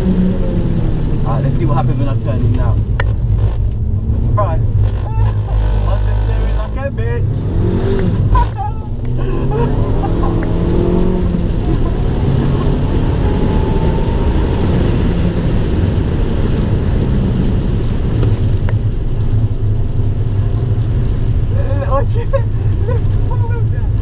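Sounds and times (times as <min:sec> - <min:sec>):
car engine under load: 0:00.0 - 0:24.0
road and tyre noise: 0:00.0 - 0:24.0.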